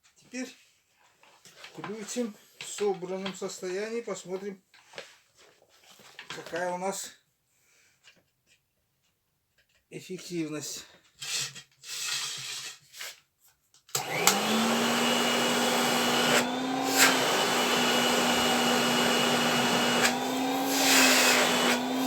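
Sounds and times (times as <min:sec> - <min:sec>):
vacuum cleaner running: 0:14.0 - 0:22.0.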